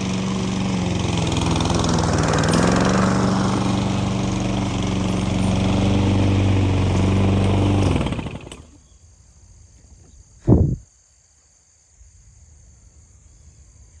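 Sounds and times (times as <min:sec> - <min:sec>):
grass cutter engine running: 0:00.0 - 0:08.8.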